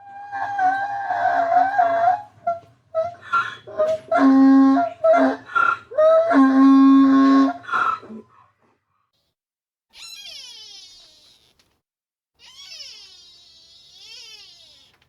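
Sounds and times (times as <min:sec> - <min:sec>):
wild animal calls: 0:09.9 - 0:11.6, 0:12.4 - 0:15.0.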